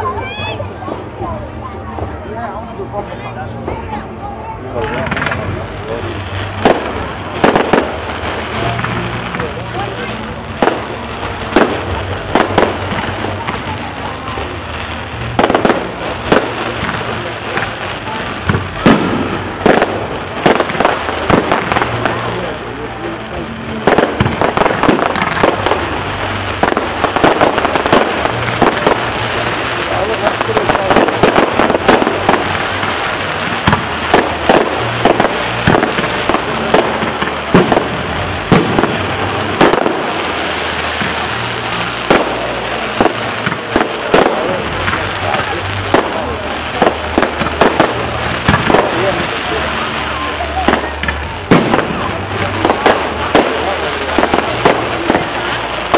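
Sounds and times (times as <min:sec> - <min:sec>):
crackle and rumble of fireworks: 0:00.0 - 0:55.9
firework shells bursting with bangs: 0:04.8 - 0:22.6, 0:23.8 - 0:55.9.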